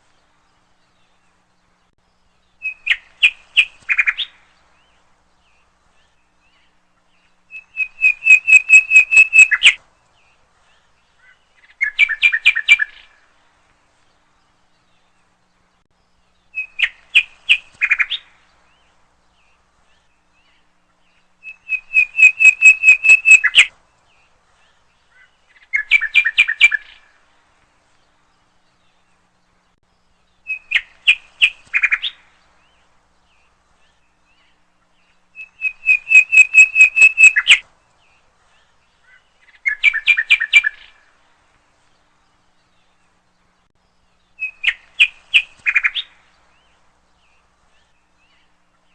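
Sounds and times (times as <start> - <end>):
songbird chirping: 0.0 - 48.9.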